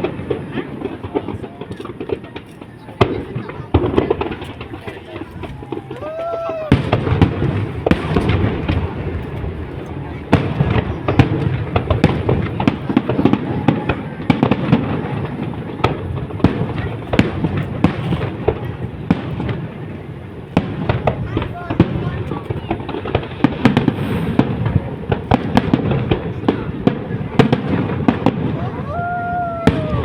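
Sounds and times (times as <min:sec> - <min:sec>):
firework bangs and crackling: 0:00.0 - 0:30.0
firework whistle: 0:23.7 - 0:24.6, 0:28.5 - 0:30.0.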